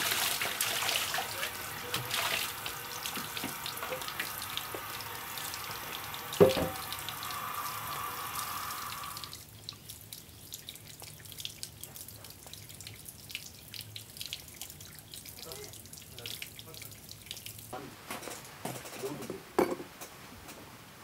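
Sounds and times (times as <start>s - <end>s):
liquid running and splashing: 0.0s - 17.8s
water dripping: 0.0s - 17.8s
sharp knock: 6.4s - 6.8s.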